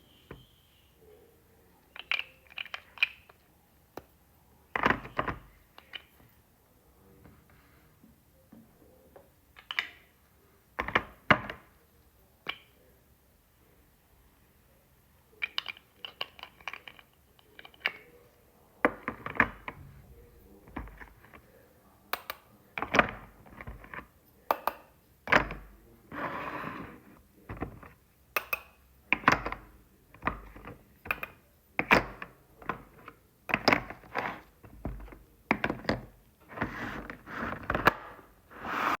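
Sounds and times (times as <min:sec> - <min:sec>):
toy eggs clicking and tapping: 0:01.9 - 0:03.4, 0:28.3 - 0:32.8.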